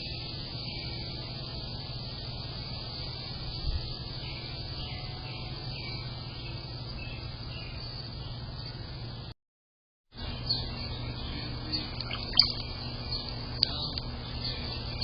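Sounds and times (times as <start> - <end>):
faint bird chirps: 0.0 - 9.3, 10.2 - 15.0
low hum and hiss: 0.0 - 9.3, 10.2 - 15.0.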